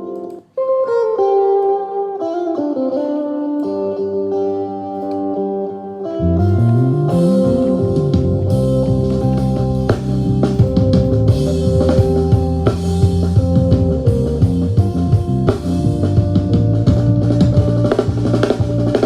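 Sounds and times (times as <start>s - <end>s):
electric guitar: 0.0s - 19.0s
drums: 6.3s - 19.0s.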